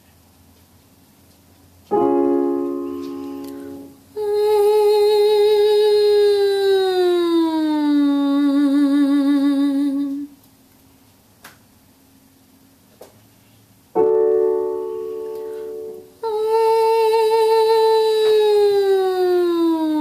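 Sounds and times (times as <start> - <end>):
piano note ringing: 1.9 - 4.2, 14.0 - 16.2
singer humming with vibrato: 2.8 - 10.4, 14.5 - 20.0.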